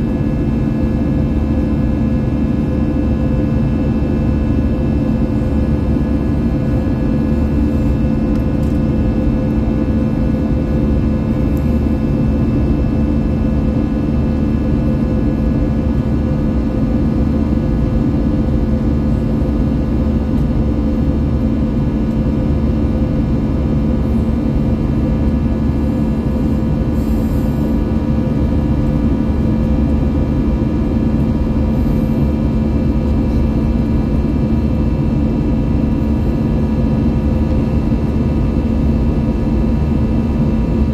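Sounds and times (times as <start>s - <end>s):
jet engine drone in cabin: 0.0s - 40.9s.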